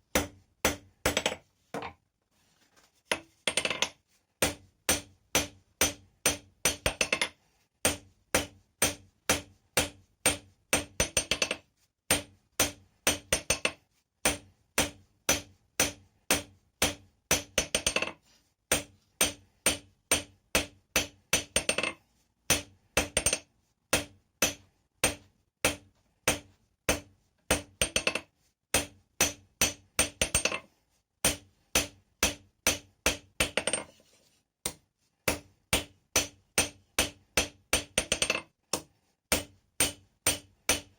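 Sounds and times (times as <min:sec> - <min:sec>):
hammer striking metal on anvil: 0:34.7 - 0:40.9.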